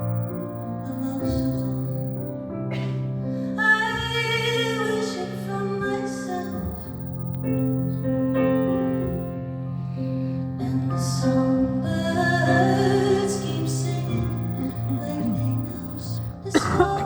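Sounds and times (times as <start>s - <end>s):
soft piano chords: 0.0s - 16.8s
woman singing: 10.6s - 17.0s.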